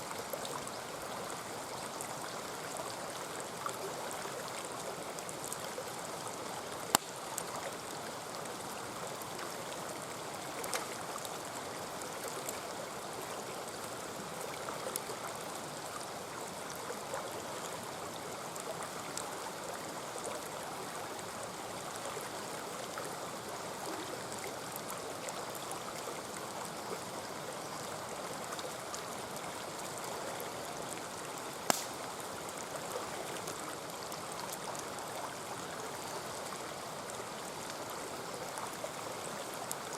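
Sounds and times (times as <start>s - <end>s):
mountain stream running: 0.0s - 39.9s
campfire pops: 6.9s - 7.2s, 31.6s - 32.1s.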